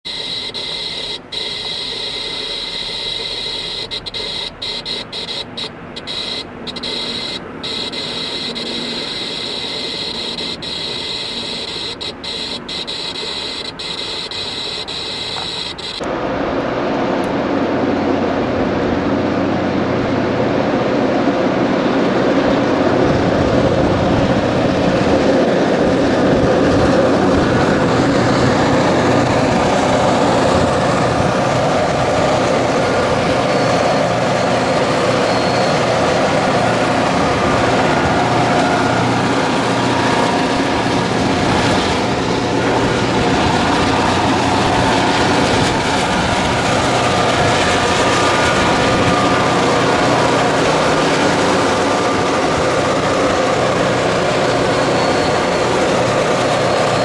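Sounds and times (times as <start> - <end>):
high-pitched tones: 0.0 - 16.1
car road and wind noise: 0.0 - 57.0
diesel locomotive engine: 0.0 - 57.0.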